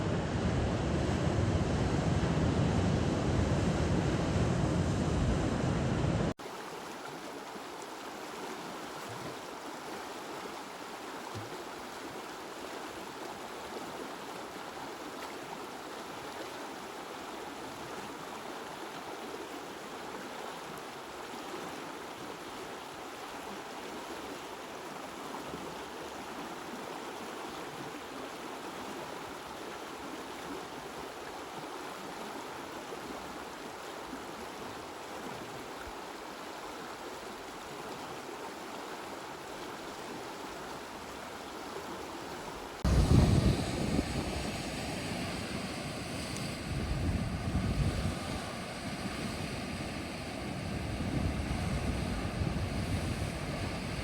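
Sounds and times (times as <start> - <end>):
loud rushing water rumbling: 0.0 - 6.7, 39.5 - 54.0
water flowing steadily: 0.0 - 54.0.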